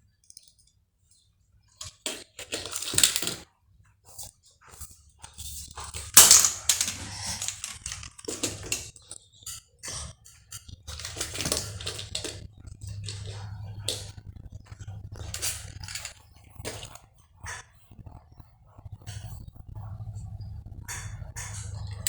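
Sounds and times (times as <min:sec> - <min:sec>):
plastic toys clattering: 0:01.8 - 0:03.5, 0:05.2 - 0:17.0
steady low hum: 0:10.5 - 0:22.0.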